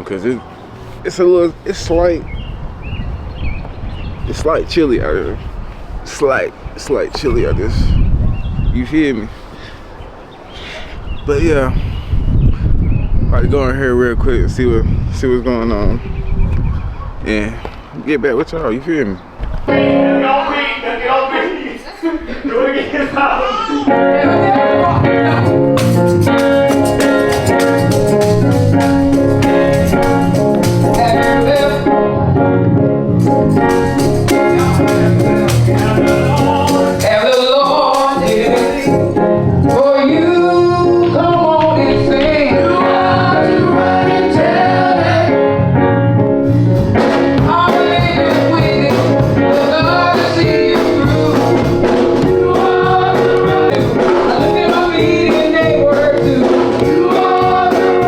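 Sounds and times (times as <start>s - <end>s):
choir singing gospel song: 23.8s - 32.1s, 33.3s - 45.8s, 46.9s - 58.0s
band with drum beat: 25.4s - 31.8s, 33.2s - 39.8s, 46.8s - 58.0s.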